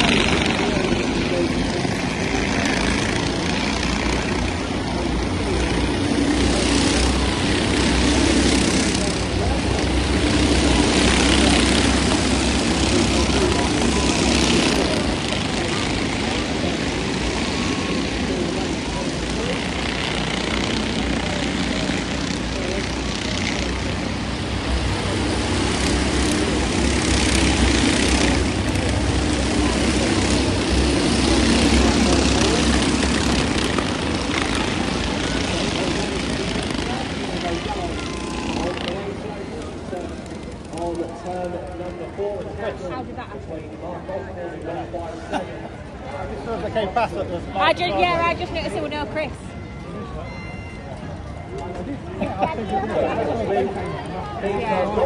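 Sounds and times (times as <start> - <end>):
race engines droning: 0.0 - 55.0.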